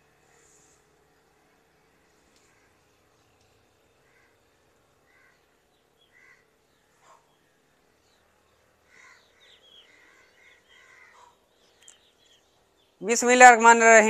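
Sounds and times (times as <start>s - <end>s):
faint bird calls: 1.9s - 12.7s.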